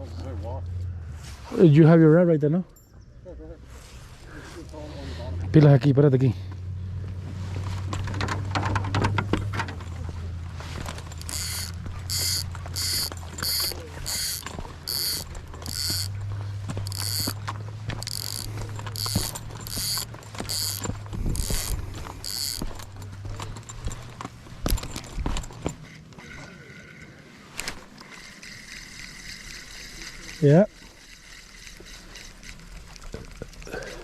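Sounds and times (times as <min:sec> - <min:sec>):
fishing reel whirring click: 0:11.2 - 0:16.2, 0:16.8 - 0:17.4, 0:18.0 - 0:22.6, 0:27.6 - 0:30.4.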